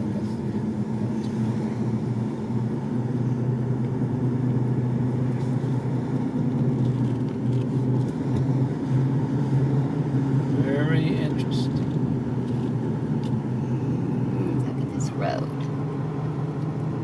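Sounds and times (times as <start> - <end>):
car engine and road hum: 0.0 - 17.0.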